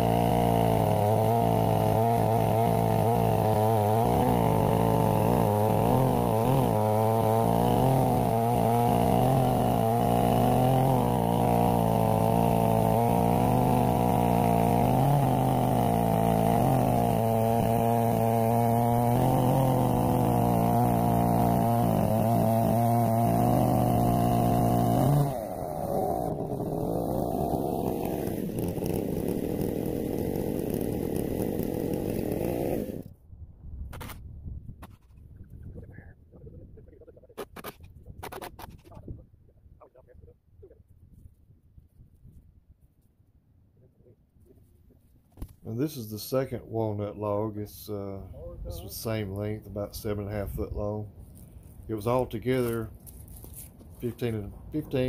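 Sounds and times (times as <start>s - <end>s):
chainsaw running at high revs: 0.0s - 33.1s, 51.4s - 55.0s.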